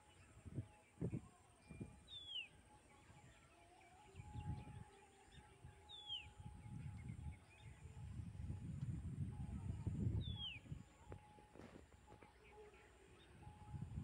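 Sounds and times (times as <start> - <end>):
bird whistled calls: 5.9 - 6.4, 10.2 - 10.8.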